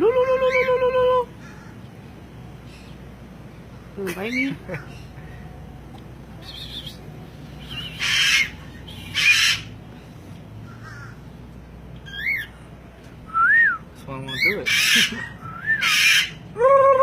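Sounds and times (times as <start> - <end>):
parrot squawking: 7.6 - 9.8, 12.0 - 12.6, 14.2 - 16.5
parrot screeching: 7.7 - 9.7, 12.0 - 12.5, 14.3 - 16.4.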